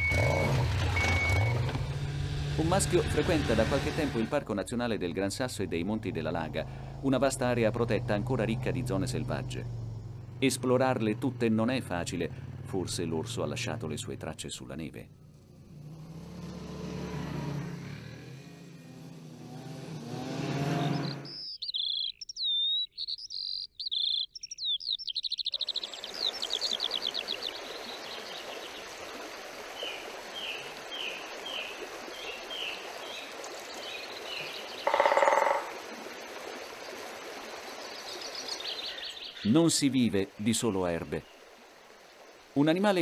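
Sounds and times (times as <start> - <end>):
songbirds singing: 20.7 - 43.0
mountain stream rushing: 25.7 - 43.0
harsh bird call: 34.2 - 35.8.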